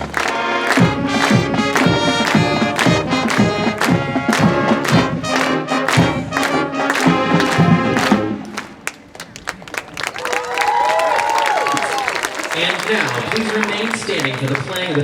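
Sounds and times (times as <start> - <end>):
steady drum beat: 0.0 - 8.5
marching band playing: 0.0 - 9.3, 12.5 - 15.0.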